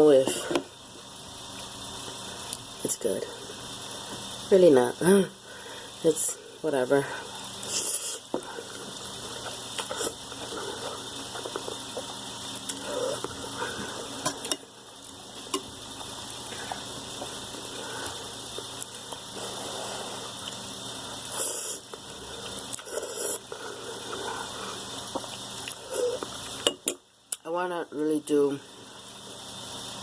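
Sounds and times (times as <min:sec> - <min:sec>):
background hiss: 0:00.0 - 0:27.5
slurping and chewing noodles: 0:07.6 - 0:14.0, 0:21.2 - 0:26.4.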